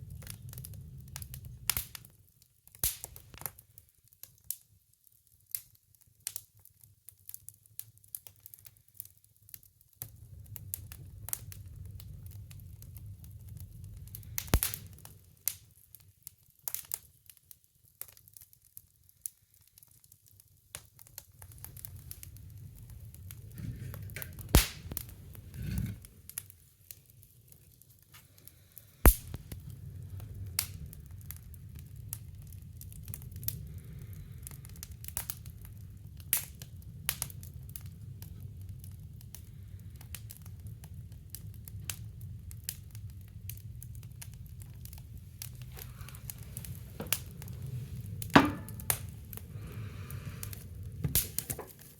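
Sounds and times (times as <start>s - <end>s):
wood fire crackling and popping: 0.0s - 51.9s
low steady rumble: 21.7s - 26.4s, 42.0s - 51.9s.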